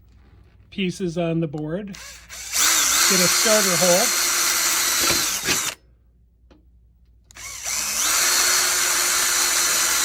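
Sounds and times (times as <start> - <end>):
electric drill boring: 2.0 - 5.8, 7.3 - 10.0.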